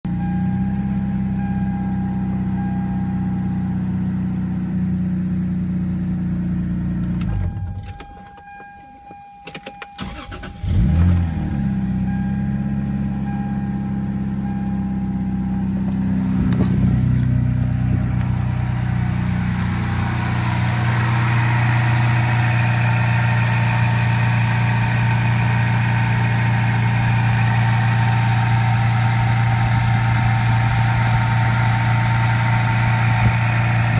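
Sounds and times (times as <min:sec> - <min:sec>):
car engine idling: 0:00.8 - 0:33.9
engine clicks: 0:07.0 - 0:11.4.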